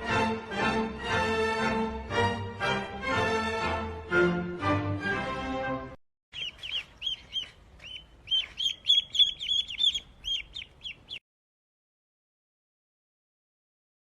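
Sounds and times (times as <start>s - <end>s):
music: 0.0s - 6.0s
bird chirping: 6.3s - 11.2s.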